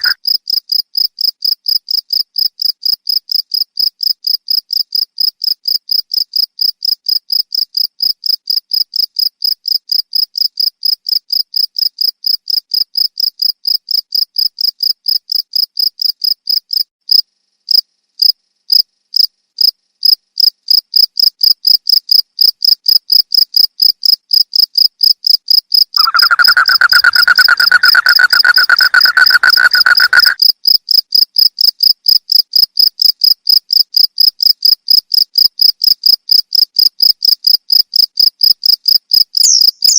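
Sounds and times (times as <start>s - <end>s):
cricket chirping: 0.0s - 39.9s
low continuous insect trill: 0.0s - 39.9s.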